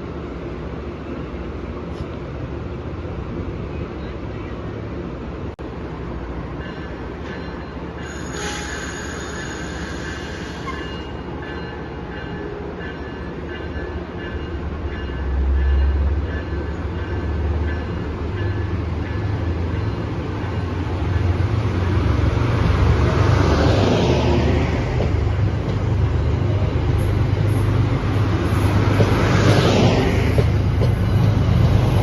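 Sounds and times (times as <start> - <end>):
deep train rumble: 0.0 - 32.0
train wheel squeal: 6.7 - 13.8.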